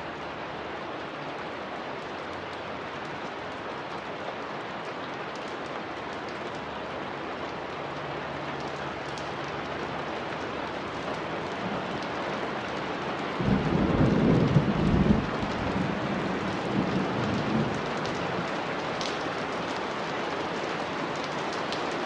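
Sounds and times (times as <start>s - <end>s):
steady rain: 0.0s - 22.0s
thunder rumbling: 13.4s - 18.5s.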